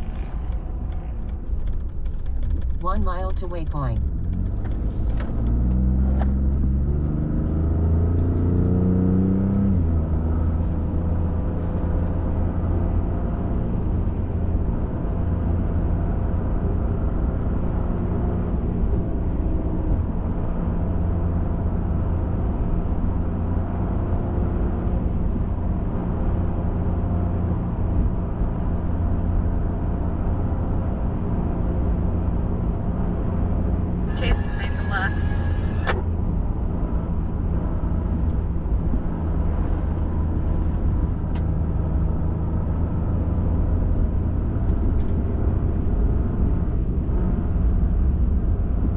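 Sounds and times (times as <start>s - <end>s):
road rumble: 0.0s - 48.9s
truck engine accelerating: 31.8s - 48.9s.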